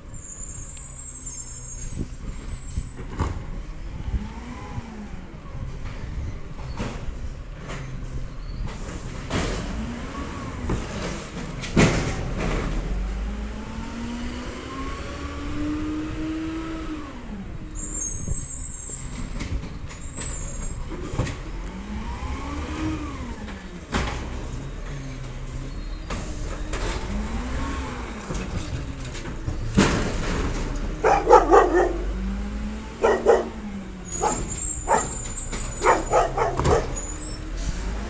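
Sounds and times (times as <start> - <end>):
garbage truck engine revving: 6.9 - 19.5, 20.1 - 38.0
hydraulics working: 23.2 - 38.0.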